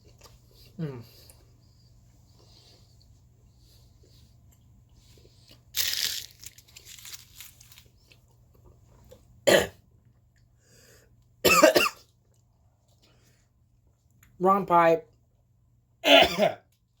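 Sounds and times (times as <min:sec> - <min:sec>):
man coughing hard: 0:09.5 - 0:09.8, 0:11.4 - 0:12.0, 0:16.0 - 0:16.6.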